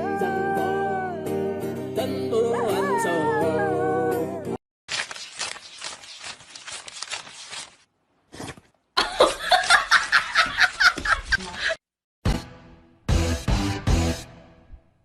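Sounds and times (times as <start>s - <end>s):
person laughing: 9.0s - 11.8s.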